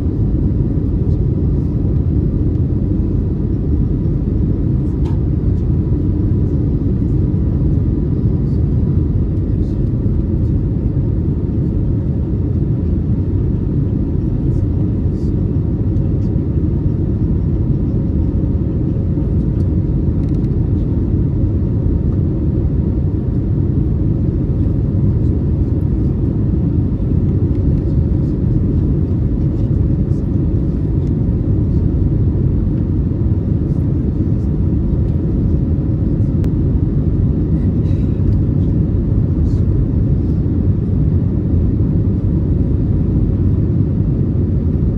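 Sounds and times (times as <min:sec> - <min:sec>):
aircraft cabin engine rumble: 0:00.0 - 0:44.9
faint even hum: 0:00.0 - 0:44.9.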